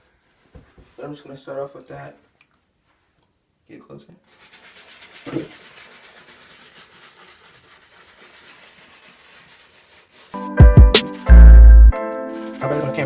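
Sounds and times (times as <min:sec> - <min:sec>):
brush scrubbing a shoe: 0:04.3 - 0:11.4, 0:12.4 - 0:13.0.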